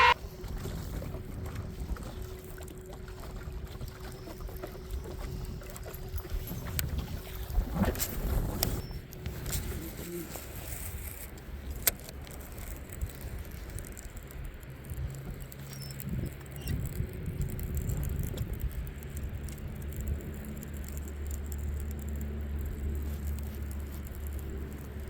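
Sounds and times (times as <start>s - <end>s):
low steady hum: 0.0s - 25.0s
wind rumbling on microphone: 0.0s - 25.0s.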